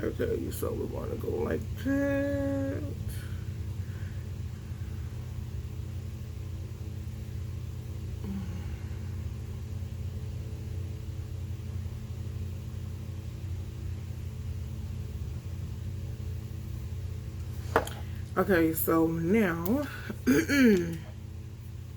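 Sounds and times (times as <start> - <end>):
steady low hum and rumble: 0.0 - 21.9.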